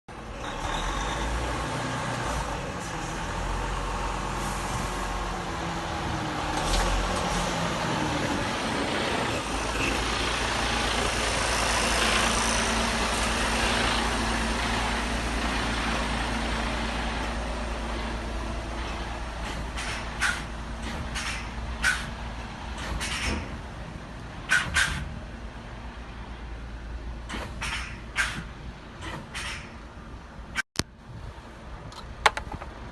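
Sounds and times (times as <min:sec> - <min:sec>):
truck engine rumbling: 0:00.1 - 0:32.9
sharp click: 0:19.5 - 0:22.1.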